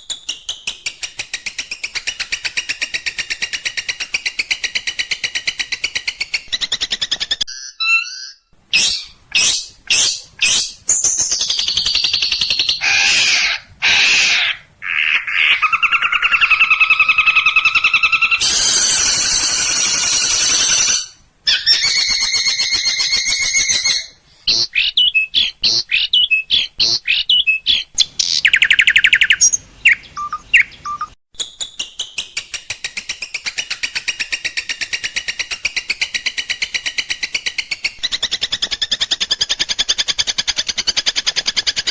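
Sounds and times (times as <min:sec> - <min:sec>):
bird song with trills: 0:06.3 - 0:32.4.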